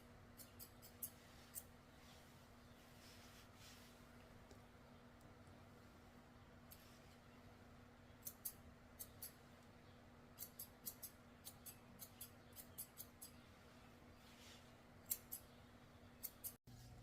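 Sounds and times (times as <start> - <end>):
scissors snipping hair: 0.3 - 1.7, 8.2 - 9.4, 10.4 - 13.4, 15.0 - 15.5, 16.2 - 16.6.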